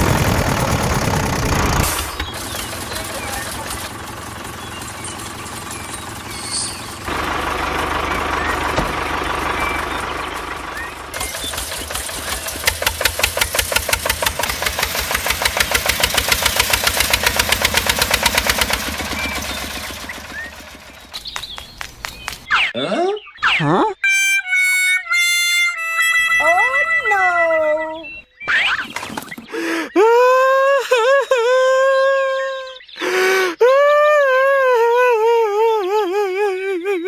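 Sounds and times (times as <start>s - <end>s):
engine chugging: 0.0s - 22.5s.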